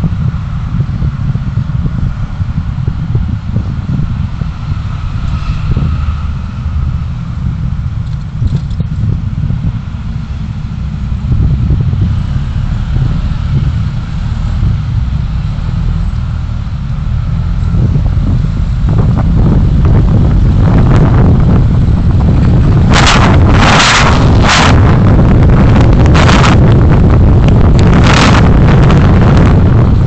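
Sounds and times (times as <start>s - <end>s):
vehicle road rumble: 0.0s - 30.0s
wind buffeting microphone: 0.0s - 30.0s.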